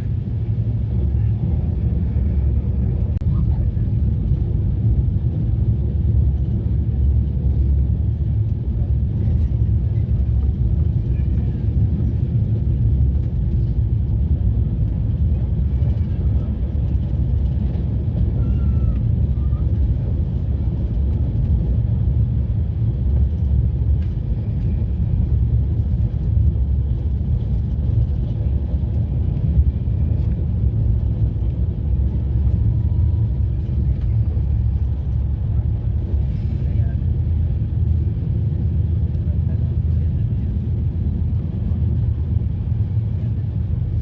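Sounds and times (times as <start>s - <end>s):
passenger train rumbling: 0.0s - 44.0s.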